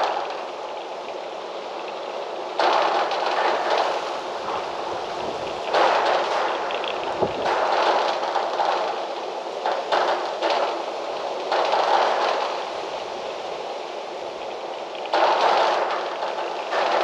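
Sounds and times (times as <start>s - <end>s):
low wind buffet: 0.0s - 17.0s
gusty wind rushing: 4.2s - 7.7s.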